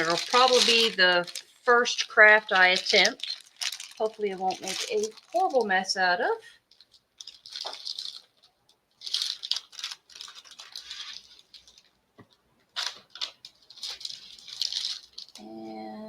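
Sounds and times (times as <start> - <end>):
person speaking: 0.0 - 3.3, 3.9 - 6.5
plastic packaging crinkling: 0.0 - 15.4.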